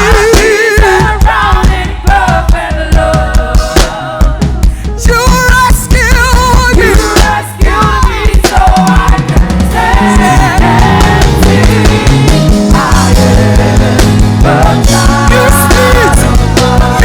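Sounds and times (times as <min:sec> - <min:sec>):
live worship band playing: 0:00.0 - 0:17.0
person singing melody: 0:08.8 - 0:17.0.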